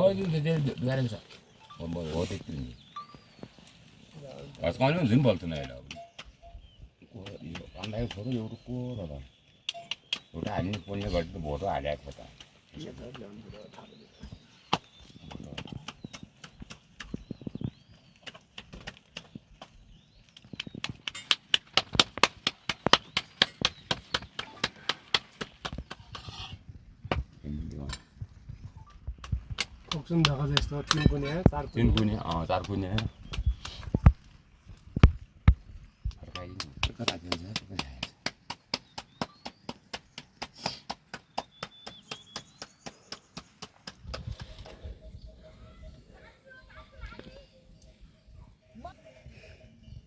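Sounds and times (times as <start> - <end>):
rapid sharp knocks: 20.8 - 26.0, 36.4 - 44.3.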